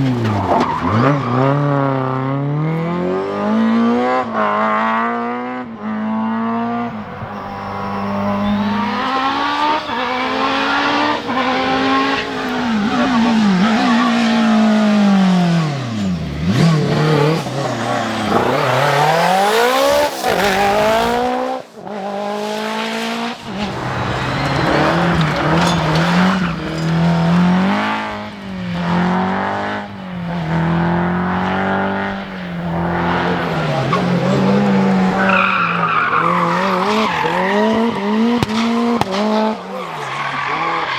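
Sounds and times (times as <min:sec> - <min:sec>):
rally car engines revving: 0:00.0 - 0:40.9.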